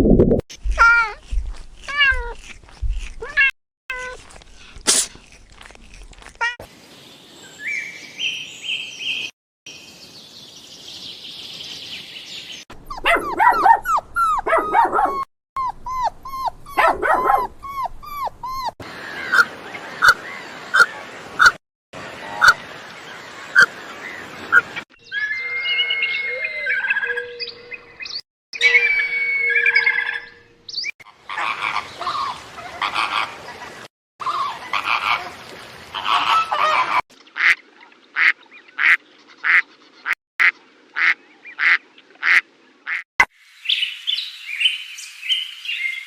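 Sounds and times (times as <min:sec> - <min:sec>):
birds calling: 0:10.0 - 0:21.6
dog barking: 0:12.9 - 0:15.3, 0:16.7 - 0:17.5.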